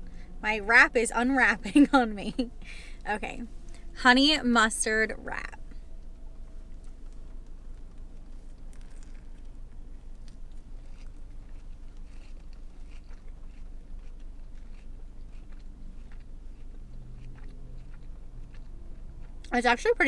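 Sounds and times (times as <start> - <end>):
person chewing food: 5.6 - 19.5.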